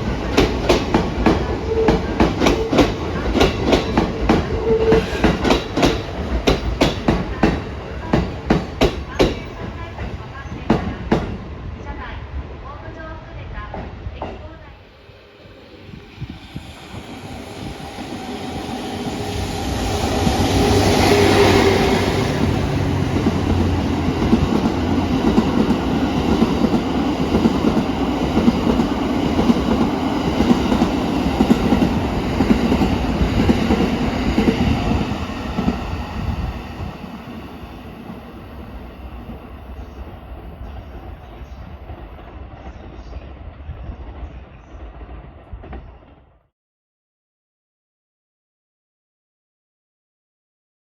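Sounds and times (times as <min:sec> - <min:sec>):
train passing: 0:00.0 - 0:46.2.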